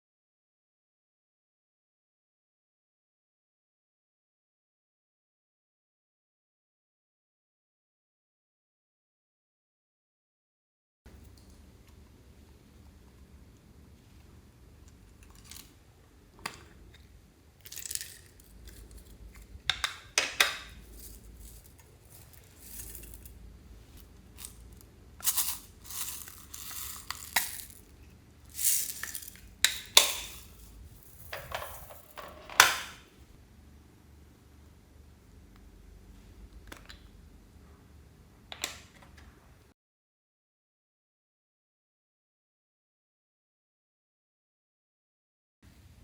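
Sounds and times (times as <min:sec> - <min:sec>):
scraping and rustling: 0:20.6 - 0:32.6
containers clinking and tapping: 0:25.2 - 0:27.9, 0:28.5 - 0:32.8.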